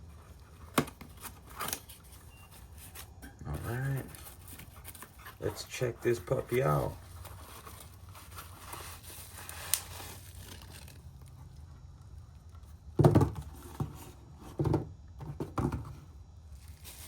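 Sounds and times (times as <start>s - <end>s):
packaging rustling: 0.0s - 11.6s, 16.5s - 17.0s.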